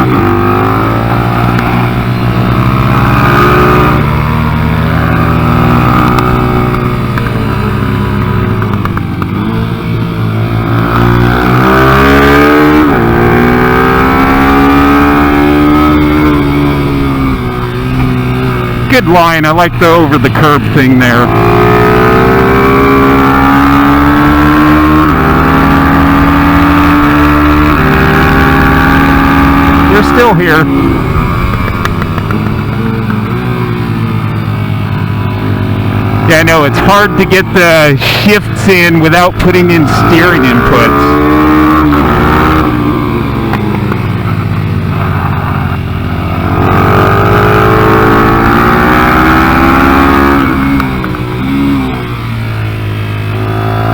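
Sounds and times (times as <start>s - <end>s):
mini bike engine revving: 10.4s - 18.9s, 20.6s - 53.9s.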